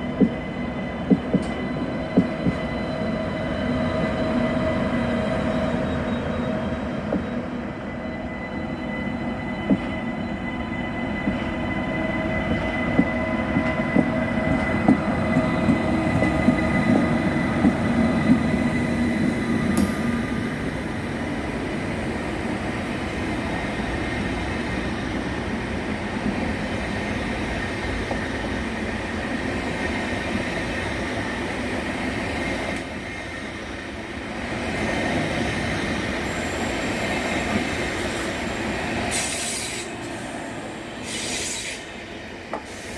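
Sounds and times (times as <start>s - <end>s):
train wheels clacking: 0.0s - 2.8s, 12.5s - 21.3s
train rumble: 0.0s - 7.8s, 9.2s - 42.9s.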